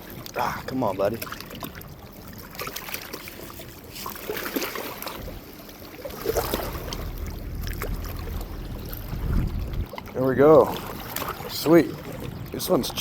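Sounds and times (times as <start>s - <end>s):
water splashing at bank: 0.0s - 13.0s
low rumble on microphone: 5.1s - 13.0s.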